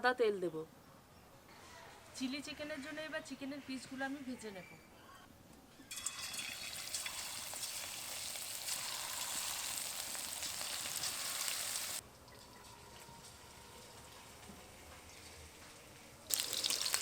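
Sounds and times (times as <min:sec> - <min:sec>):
food sizzling in hot oil: 0:05.9 - 0:12.0, 0:16.3 - 0:17.0.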